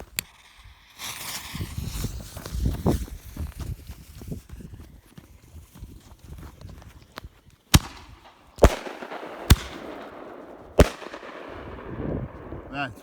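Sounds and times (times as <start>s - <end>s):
fireworks bangs: 7.8s - 13.0s.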